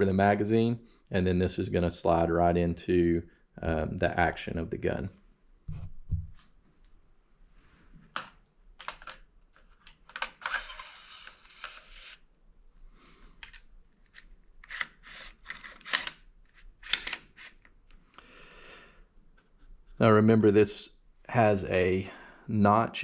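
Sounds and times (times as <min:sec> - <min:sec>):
metal parts clicking and knocking: 0:08.2 - 0:12.0, 0:13.4 - 0:17.7
metal sliding scrape: 0:10.4 - 0:12.2, 0:14.6 - 0:16.1.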